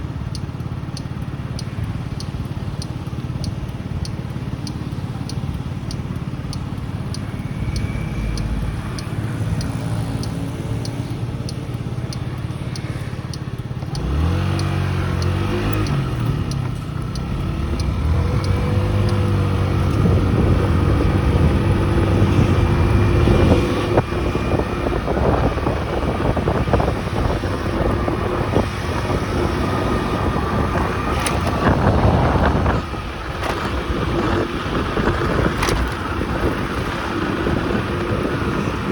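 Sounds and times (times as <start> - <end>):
light ticking: 0.0 - 23.2
small motorcycle engine: 0.0 - 38.9.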